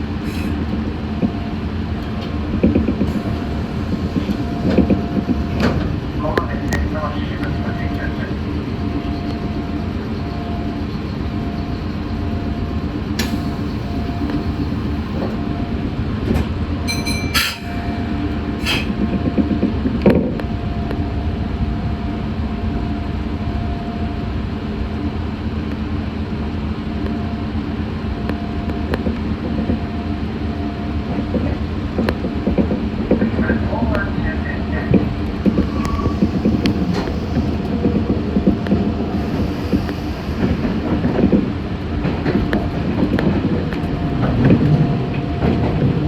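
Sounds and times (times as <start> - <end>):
train wheels rumbling: 0.0 - 20.4, 34.7 - 46.0.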